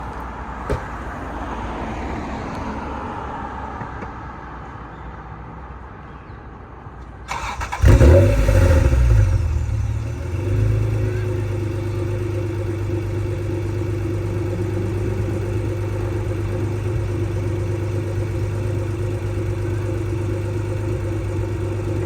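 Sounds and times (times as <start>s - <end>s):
car engine starting and idling: 7.3s - 22.0s.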